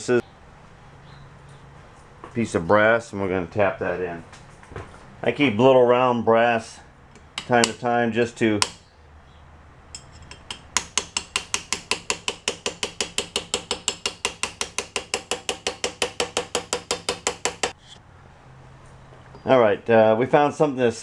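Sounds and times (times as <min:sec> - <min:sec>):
hammer tapping on metal rod: 0:07.2 - 0:07.8, 0:08.6 - 0:08.8, 0:10.0 - 0:17.8.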